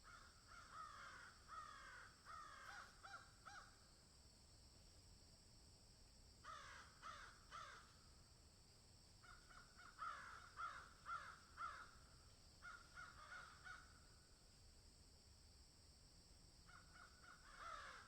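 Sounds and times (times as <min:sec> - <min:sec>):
crow cawing: 0:00.0 - 0:03.7, 0:06.4 - 0:08.0, 0:09.2 - 0:14.1, 0:16.7 - 0:18.0.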